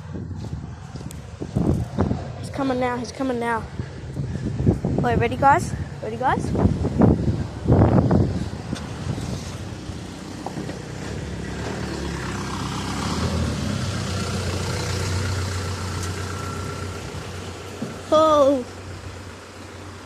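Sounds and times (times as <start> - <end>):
truck engine rumble driving past: 5.6 - 20.0.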